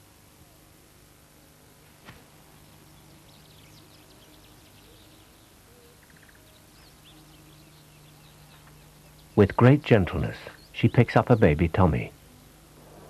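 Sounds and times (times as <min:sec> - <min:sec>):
low hum: 0:00.0 - 0:13.0
steady hiss: 0:00.0 - 0:13.0
bird chirps: 0:02.9 - 0:09.5.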